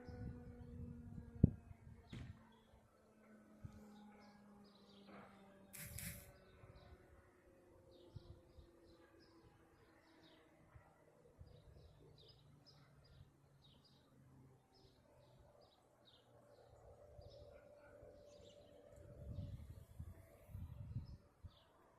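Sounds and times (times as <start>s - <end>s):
small bird chirping: 5.8s - 6.3s.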